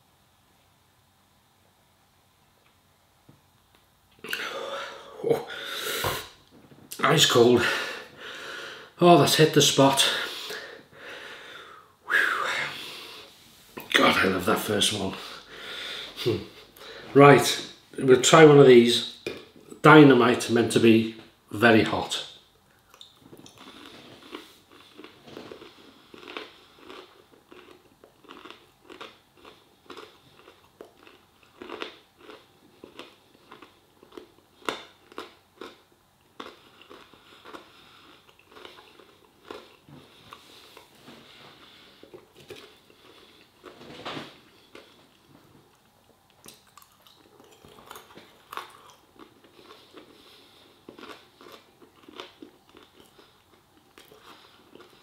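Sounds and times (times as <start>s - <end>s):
person chewing: 4.1s - 8.7s, 22.7s - 55.0s.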